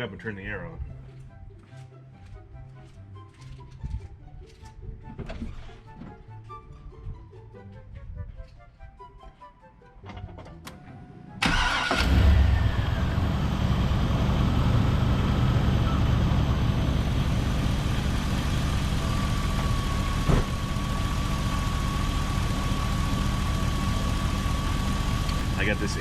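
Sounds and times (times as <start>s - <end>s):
truck engine starting and idling: 10.1s - 26.0s.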